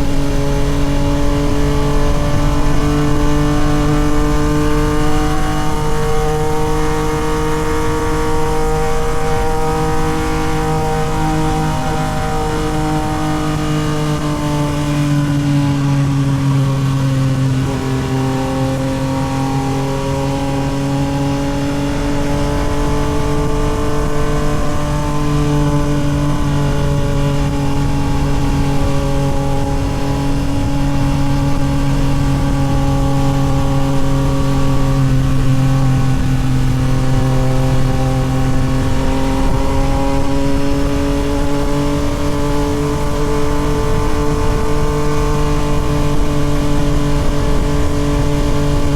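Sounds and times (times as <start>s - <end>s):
motorcycle engine cruising: 0.0s - 48.9s
wind rush: 0.0s - 48.9s.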